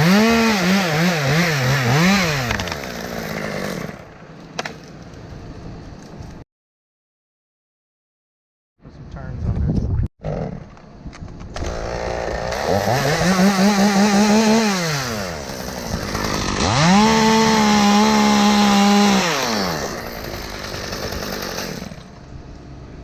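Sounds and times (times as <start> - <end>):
chainsaw revving: 0.0 - 4.0, 11.6 - 22.1.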